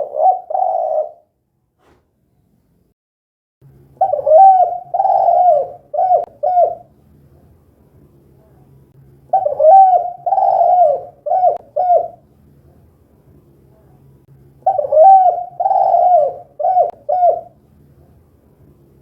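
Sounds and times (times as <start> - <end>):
dove cooing: 0.0 - 1.3, 4.0 - 6.9, 9.3 - 12.2, 14.6 - 17.6
faint low hum: 3.6 - 19.0.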